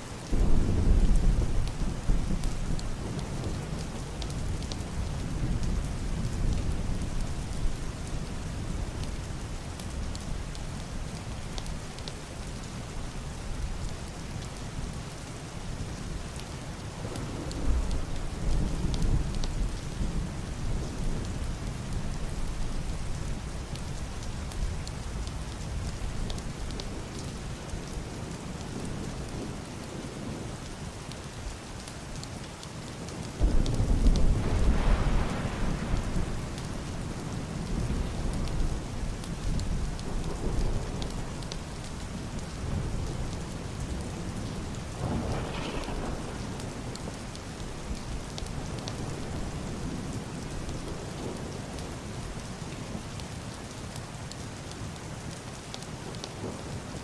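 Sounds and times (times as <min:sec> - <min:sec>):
heavy rain on roof and window: 0:00.0 - 0:57.0
muffled thunder rolling: 0:00.3 - 0:09.1, 0:33.4 - 0:51.8.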